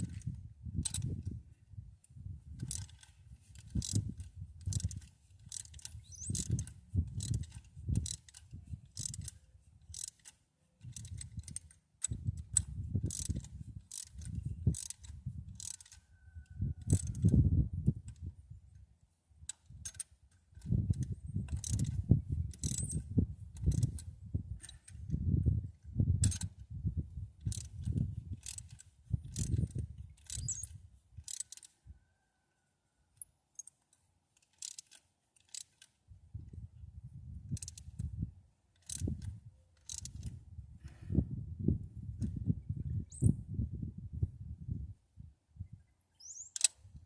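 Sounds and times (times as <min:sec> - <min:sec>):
socket ratchet clicking: 0:02.6 - 0:16.0, 0:16.8 - 0:17.4, 0:19.5 - 0:23.0, 0:23.6 - 0:24.8, 0:26.2 - 0:26.5, 0:27.4 - 0:31.7, 0:34.4 - 0:35.9, 0:37.6 - 0:38.1, 0:38.8 - 0:40.4, 0:46.2 - 0:46.8.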